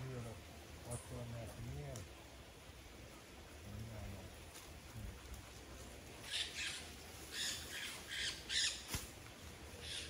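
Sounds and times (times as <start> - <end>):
bird giving harsh raspy calls: 6.2 - 8.9, 9.8 - 10.0.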